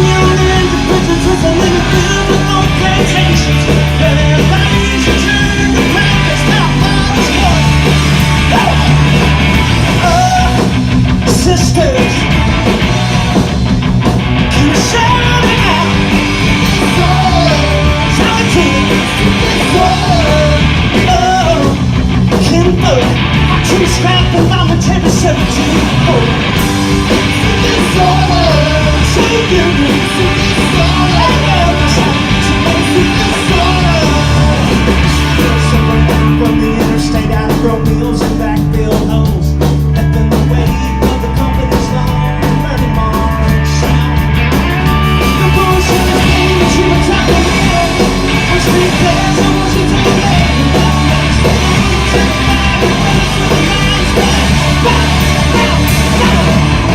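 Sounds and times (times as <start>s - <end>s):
person shouting singing: 0.0s - 7.8s, 8.4s - 9.1s, 10.0s - 10.7s, 14.5s - 16.1s, 16.7s - 21.8s, 27.3s - 39.4s, 45.3s - 56.9s
punk rock band playing live: 0.0s - 56.9s.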